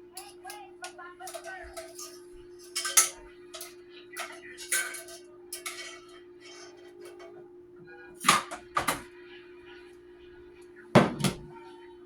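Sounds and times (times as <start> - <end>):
utensils clicking and tapping: 0.0 - 7.5, 8.2 - 9.1
steady hum: 0.0 - 12.0.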